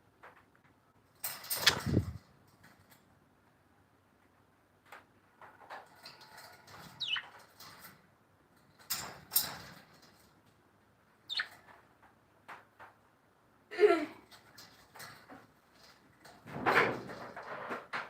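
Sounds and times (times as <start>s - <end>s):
falling bird chirps: 6.8s - 7.4s, 11.3s - 11.6s
birds calling: 7.0s - 7.3s, 11.3s - 11.5s.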